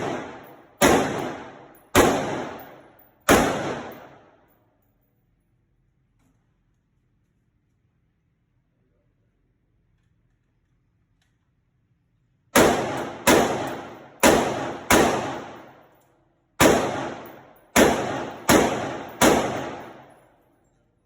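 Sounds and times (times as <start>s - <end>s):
rifle shots: 0.0s - 4.4s, 12.6s - 15.8s, 16.6s - 20.2s.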